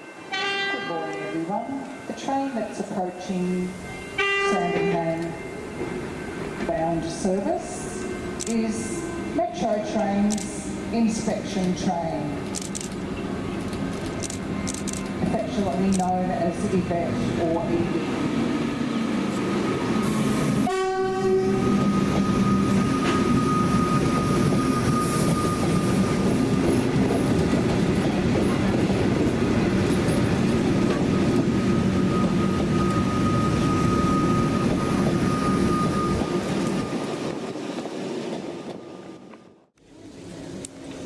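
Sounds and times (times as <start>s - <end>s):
train horn blast: 0.3s - 1.5s, 3.9s - 5.4s, 20.6s - 23.3s
train wheels rumbling on rail: 1.5s - 41.0s.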